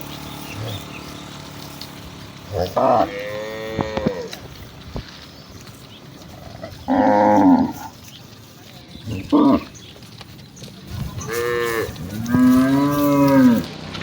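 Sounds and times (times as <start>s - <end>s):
cattle mooing: 0.4s - 1.1s, 2.4s - 4.6s, 6.3s - 8.0s, 9.0s - 9.8s, 10.9s - 13.8s.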